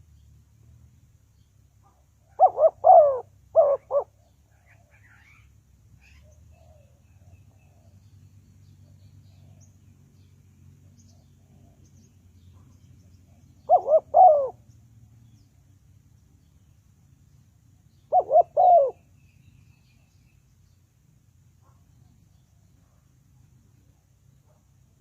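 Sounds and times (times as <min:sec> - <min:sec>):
dove cooing: 0:02.2 - 0:05.4, 0:13.3 - 0:14.7, 0:18.0 - 0:19.0.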